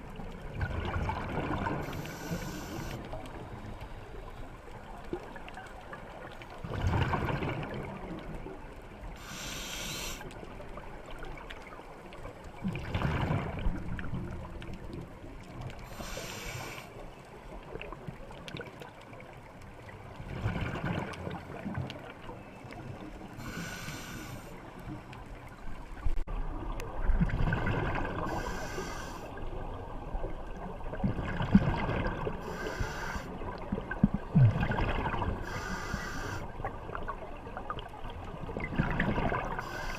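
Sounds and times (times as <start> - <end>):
exhaled bubbles rumbling: 0.0 - 2.1, 5.1 - 8.7, 12.6 - 16.0, 20.1 - 23.4, 25.8 - 28.4, 29.4 - 32.8, 33.4 - 35.6, 36.7 - 39.9
regulator hiss on inhale: 1.8 - 4.4, 9.2 - 10.4, 15.8 - 17.0, 23.4 - 24.7, 28.3 - 29.4, 32.4 - 33.4, 35.4 - 36.5, 39.6 - 39.9.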